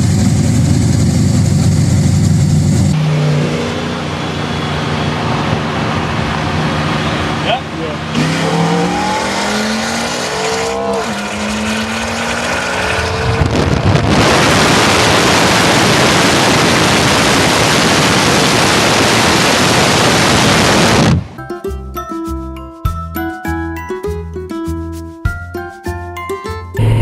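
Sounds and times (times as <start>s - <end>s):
car engine accelerating hard: 0.0s - 21.3s, 26.8s - 27.0s
loud even rushing noise: 2.2s - 21.4s.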